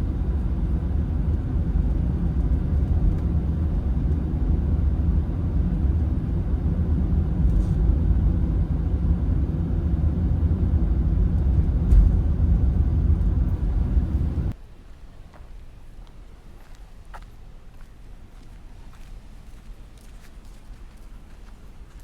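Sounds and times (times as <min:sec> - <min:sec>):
low rumble: 0:00.0 - 0:14.6.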